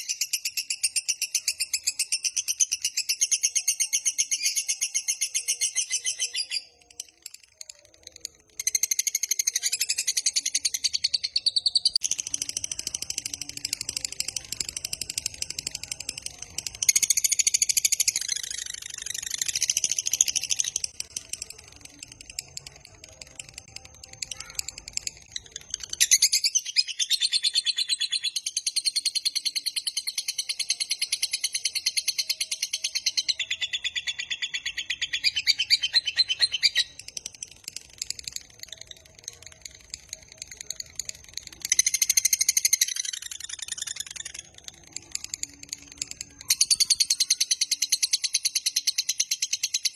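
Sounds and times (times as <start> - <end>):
lovebird chattering trill: 24.3 - 49.9.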